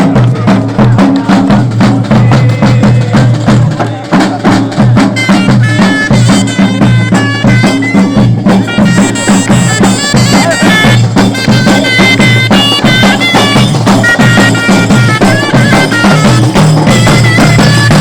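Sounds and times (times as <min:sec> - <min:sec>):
repeating drum beat: 0:00.0 - 0:18.0
reedy wind instrument melody: 0:05.0 - 0:18.0.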